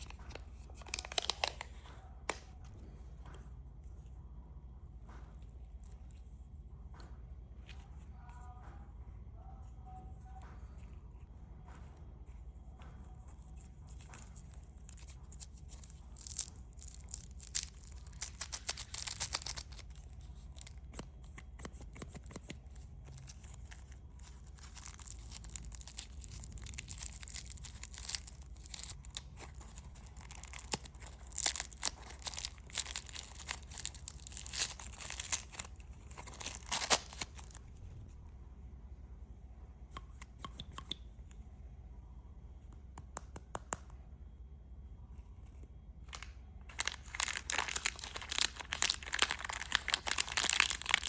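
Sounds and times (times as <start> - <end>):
candy wrappers crinkling: 0.0 - 2.5, 14.0 - 37.8, 46.1 - 51.0.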